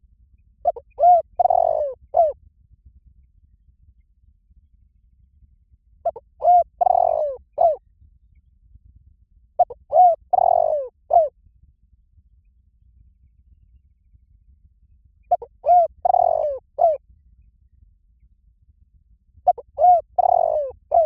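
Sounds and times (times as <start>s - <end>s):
dove cooing: 0.6s - 2.4s, 6.1s - 7.8s, 9.6s - 11.3s, 15.3s - 17.0s, 19.5s - 21.0s.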